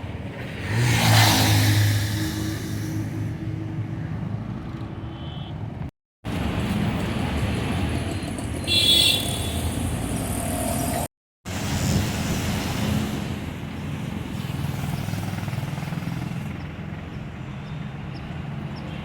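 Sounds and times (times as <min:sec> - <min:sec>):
traffic engines rumbling: 0:00.0 - 0:19.0
car horn: 0:05.0 - 0:05.6, 0:08.7 - 0:09.8.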